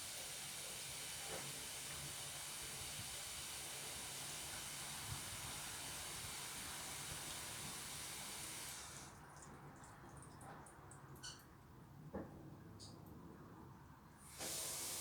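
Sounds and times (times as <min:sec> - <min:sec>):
water running from tap: 0:00.0 - 0:09.1, 0:14.3 - 0:15.0.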